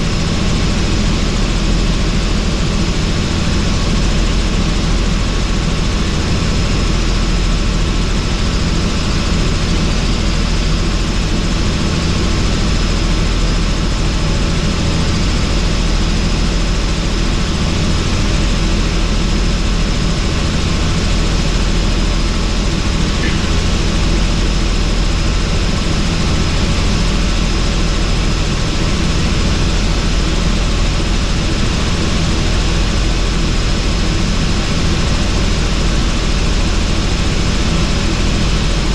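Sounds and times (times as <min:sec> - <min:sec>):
helicopter rotor and engine: 0:00.0 - 0:38.9
thin high whine: 0:23.1 - 0:24.6.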